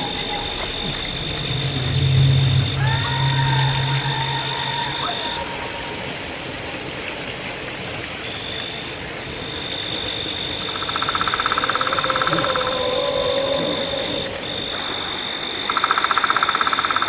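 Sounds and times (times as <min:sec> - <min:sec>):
rapid pulsing animal call: 0:00.0 - 0:06.2, 0:10.7 - 0:14.8
insect trill: 0:00.0 - 0:06.5, 0:08.4 - 0:17.0
constant hiss: 0:00.0 - 0:17.0.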